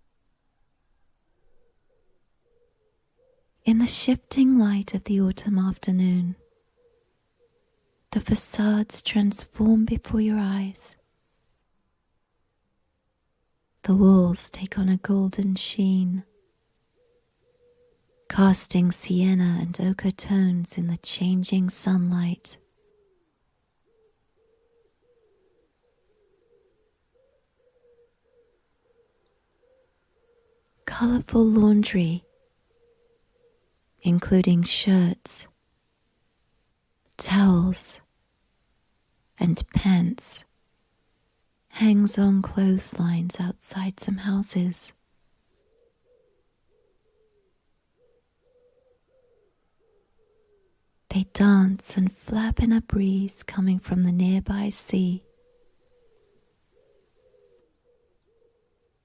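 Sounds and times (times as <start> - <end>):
insect chirping: 0.0 - 52.8
bird hooting: 17.0 - 18.3, 32.2 - 33.7, 45.6 - 50.8, 55.2 - 58.7.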